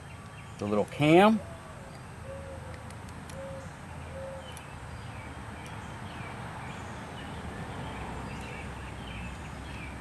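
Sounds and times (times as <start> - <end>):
bird hooting: 1.4 - 4.6
bird chirps: 1.4 - 10.0.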